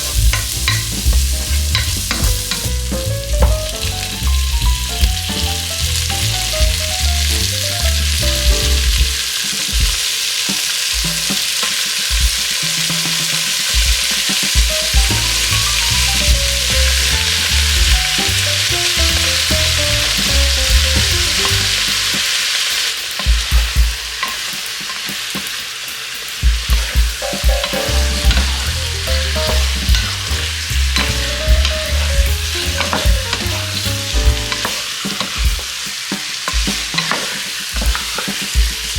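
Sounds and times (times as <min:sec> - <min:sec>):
meat sizzling in a pan: 0:00.0 - 0:38.9.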